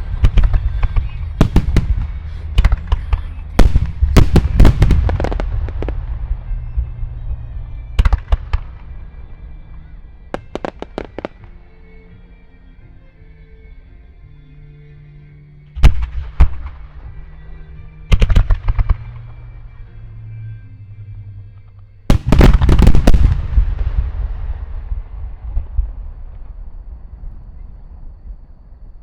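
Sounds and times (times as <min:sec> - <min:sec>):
fireworks booming: 0:00.0 - 0:11.7, 0:22.1 - 0:29.0
faint music: 0:00.0 - 0:29.0.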